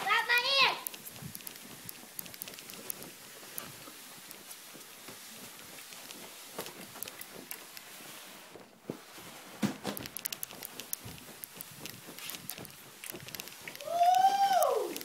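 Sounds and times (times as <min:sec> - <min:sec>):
basket scraping along floor: 0:02.8 - 0:10.1.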